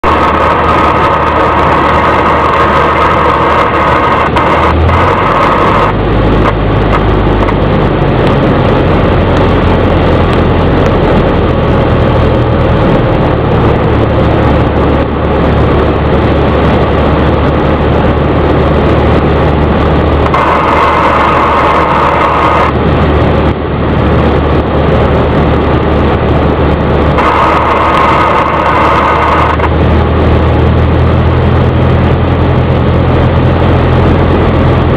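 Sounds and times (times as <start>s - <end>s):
propeller plane engine droning: 0.0s - 34.9s
high steady tone: 20.0s - 22.8s, 27.1s - 29.9s.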